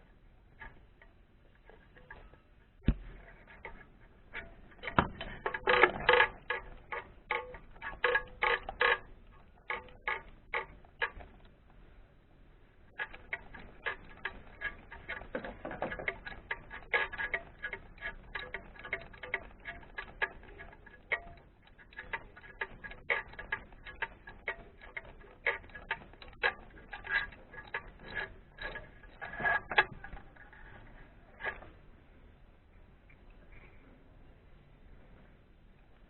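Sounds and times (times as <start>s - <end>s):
hand tools clicking: 4.8s - 11.5s, 13.0s - 30.4s.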